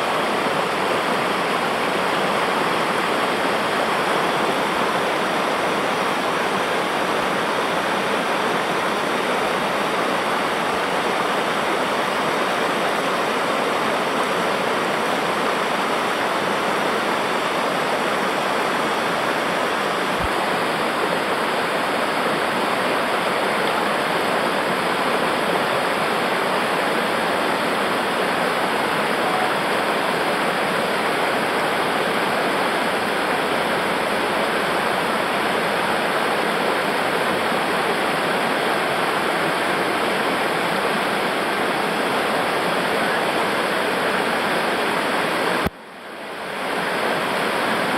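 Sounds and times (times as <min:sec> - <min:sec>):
river water rushing over rocks: 0:00.0 - 0:47.9.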